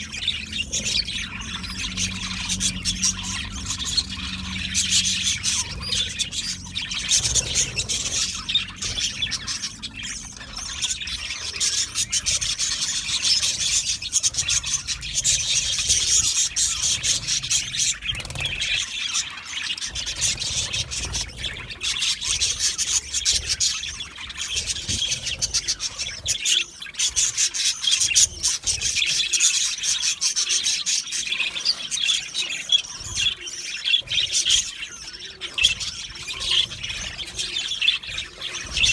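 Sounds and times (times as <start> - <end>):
budgerigars chattering and chirping: 0.0 - 38.9.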